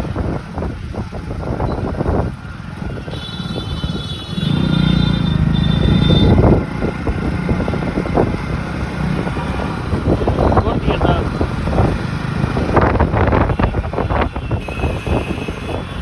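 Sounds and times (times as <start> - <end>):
road traffic engines: 0.0 - 16.0
vehicle passing close: 3.8 - 16.0.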